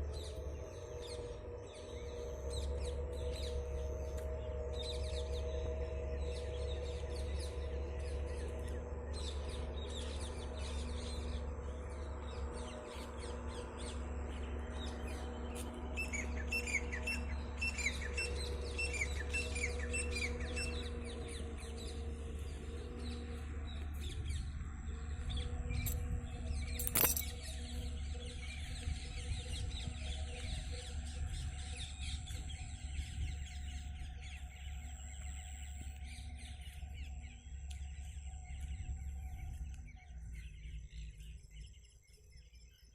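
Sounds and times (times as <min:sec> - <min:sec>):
steady low hum: 0:00.0 - 0:42.9
small birds chirping: 0:07.3 - 0:42.9.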